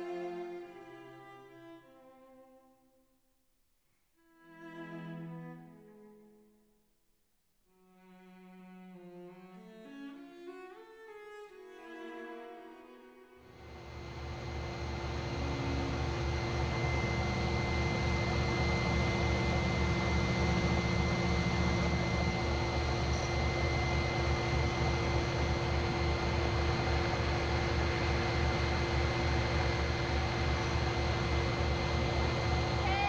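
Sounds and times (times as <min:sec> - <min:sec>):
electric motor humming: 0:13.6 - 0:33.0.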